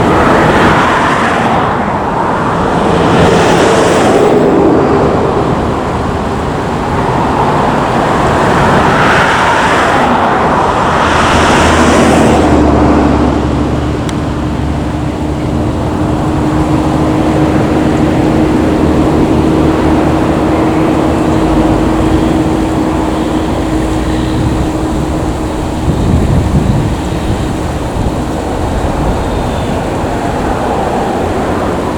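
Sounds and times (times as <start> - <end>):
held engine tone: 0.0 - 31.9
jet engines rushing: 0.0 - 31.9.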